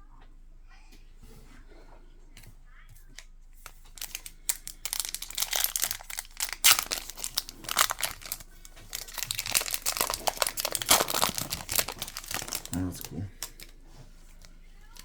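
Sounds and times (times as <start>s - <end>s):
wrapper crinkling and tearing: 3.6s - 13.7s.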